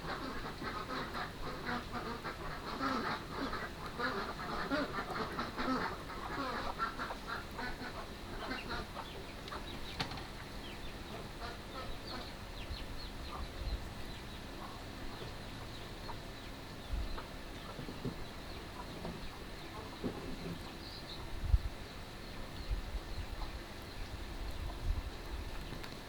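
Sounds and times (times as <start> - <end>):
ducks quacking: 0.0 - 21.3.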